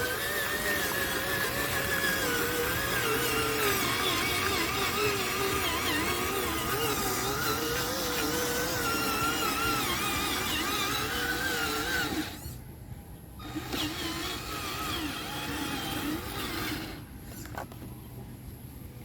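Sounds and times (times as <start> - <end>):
electric motor whining: 0.0 - 12.6, 13.4 - 17.6.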